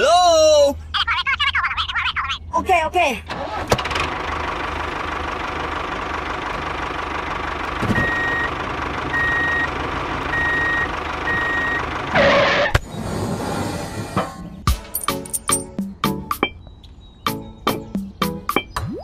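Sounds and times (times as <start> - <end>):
small tractor engine running: 3.3 - 12.7
reversing beeper beeps: 8.0 - 8.5, 9.2 - 9.7, 10.3 - 11.8.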